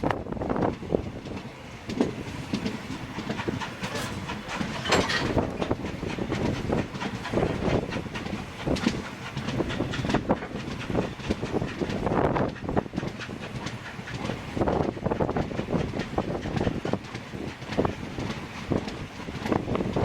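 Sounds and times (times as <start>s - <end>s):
train rumbling: 0.0s - 20.0s
wagons knocking and clanking: 1.3s - 14.9s.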